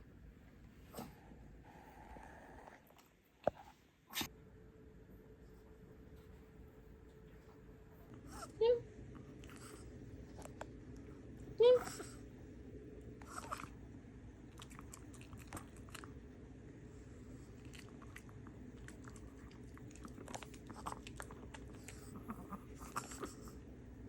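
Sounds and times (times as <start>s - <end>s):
dog crunching food: 14.4s - 16.2s, 17.4s - 23.5s.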